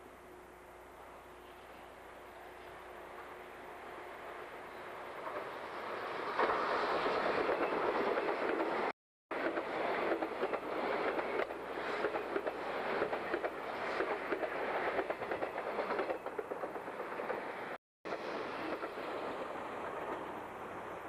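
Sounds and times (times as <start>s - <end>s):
train wheels clattering over rail joints: 6.2s - 20.5s.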